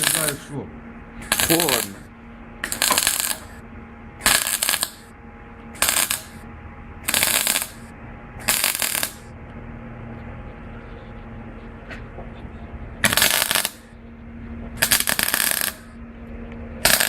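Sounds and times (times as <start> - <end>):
welding arc crackling: 0.0 - 0.6, 1.2 - 2.0, 2.6 - 3.6, 4.2 - 5.1, 5.8 - 6.4, 7.0 - 9.4, 13.0 - 13.8, 14.8 - 16.0
steady low hum: 0.0 - 17.0.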